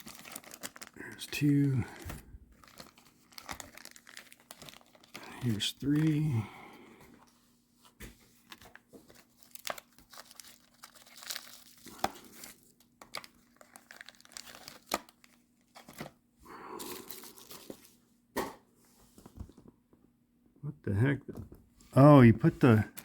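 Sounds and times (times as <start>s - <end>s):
packaging crinkling and rustling: 0.0s - 6.4s, 7.9s - 16.2s, 16.8s - 18.0s.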